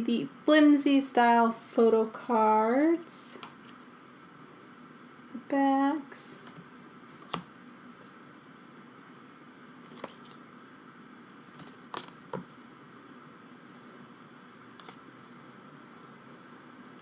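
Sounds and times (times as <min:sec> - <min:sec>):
paper cards clicking and tapping: 0:07.2 - 0:07.5, 0:09.9 - 0:10.4, 0:11.6 - 0:12.5.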